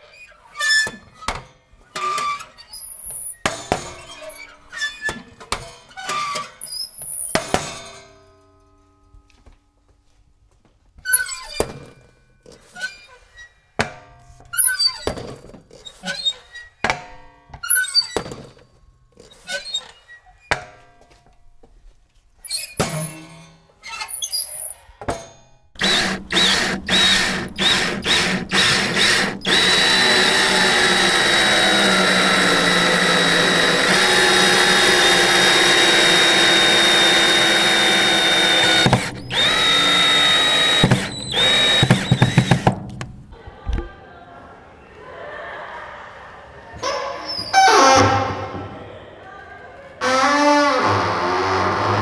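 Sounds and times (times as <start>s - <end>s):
high-pitched power tool motor: 25.8s - 42.8s.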